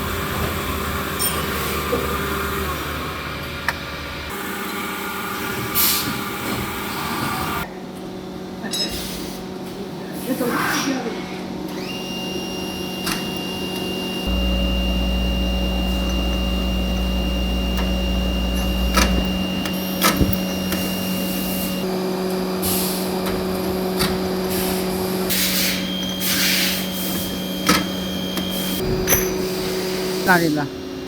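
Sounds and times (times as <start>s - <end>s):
factory machinery hum and whine: 0.0s - 31.0s
low rumble: 14.3s - 20.8s
hissing air bursts: 24.4s - 30.5s.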